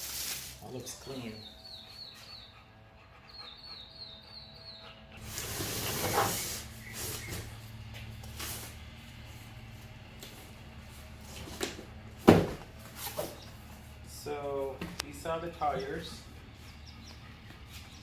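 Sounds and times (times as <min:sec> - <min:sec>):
packaging rustling and scraping: 0:05.2 - 0:07.6, 0:08.2 - 0:09.3.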